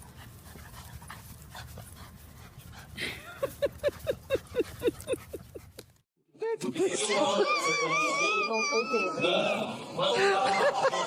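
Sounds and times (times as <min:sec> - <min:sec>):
dog panting fast: 0:00.0 - 0:05.9.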